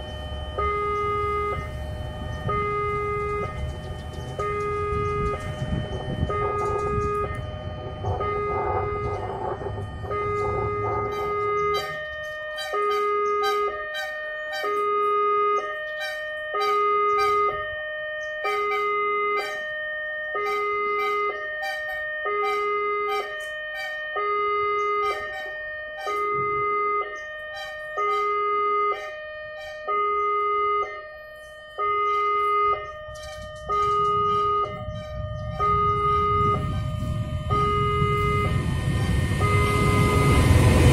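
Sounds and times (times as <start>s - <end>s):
low rumble: 0.0s - 12.2s, 32.2s - 40.9s
two-tone crossing alarm: 0.0s - 40.9s.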